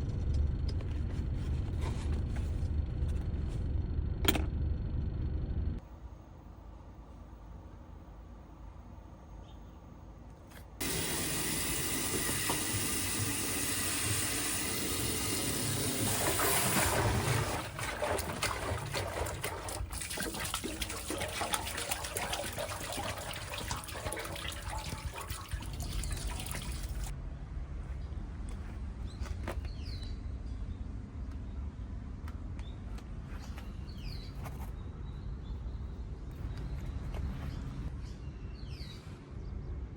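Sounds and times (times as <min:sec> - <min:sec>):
running water rushing: 0:10.8 - 0:27.1.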